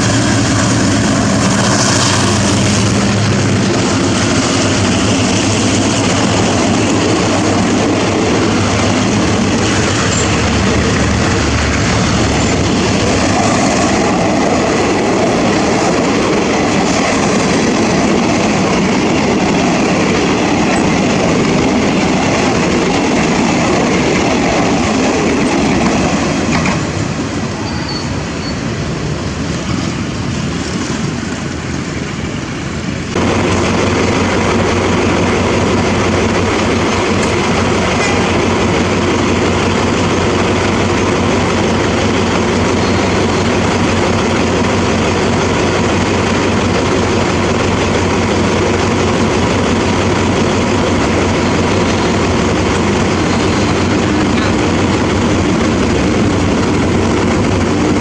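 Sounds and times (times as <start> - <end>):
low engine hum: 0.0 - 21.2, 33.1 - 58.0
train wheels rumbling on rails: 0.0 - 58.0.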